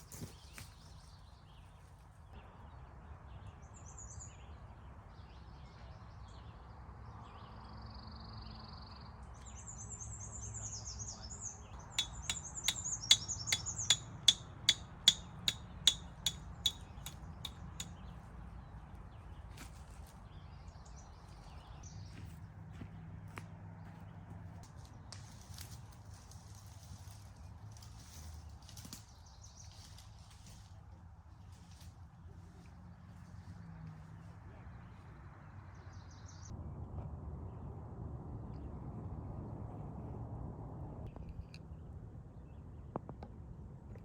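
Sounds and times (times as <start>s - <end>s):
sharp ticks: 12.0s - 18.0s.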